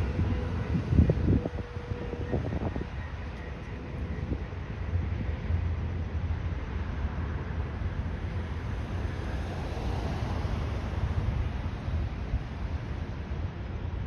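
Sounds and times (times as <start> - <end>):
wind buffeting microphone: 0.0 - 6.6
jet engines rumbling on takeoff: 0.0 - 14.0.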